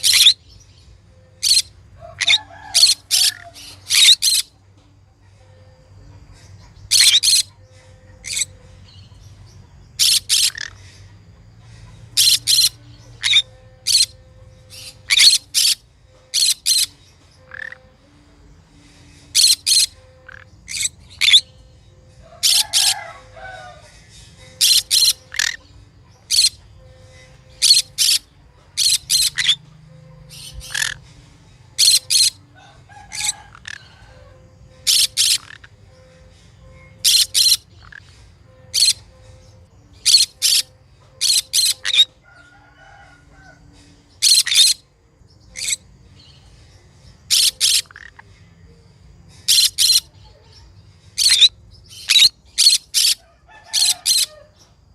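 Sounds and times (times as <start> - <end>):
parrot shrill calls: 0.0 - 0.4, 1.4 - 4.5, 6.9 - 7.5, 10.0 - 10.8, 12.2 - 16.9, 19.4 - 21.6, 22.2 - 24.0, 24.6 - 25.6, 26.3 - 26.6, 27.5 - 29.6, 30.3 - 31.0, 31.8 - 34.2, 34.8 - 35.7, 37.0 - 38.1, 38.7 - 39.0, 40.0 - 43.5, 44.2 - 44.8, 51.2 - 54.6.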